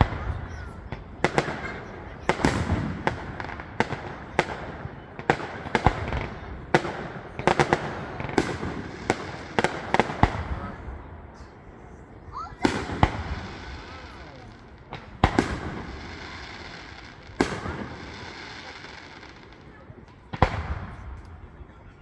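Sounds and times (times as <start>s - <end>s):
fireworks bangs: 0.0s - 22.0s
fireworks rumbling and crackle: 0.0s - 22.0s.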